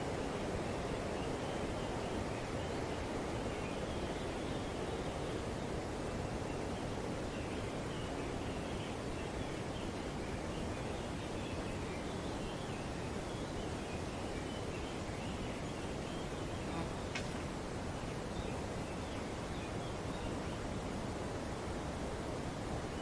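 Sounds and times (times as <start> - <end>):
wind rustling foliage: 0.0 - 23.0
faint bird chirps: 6.5 - 17.4.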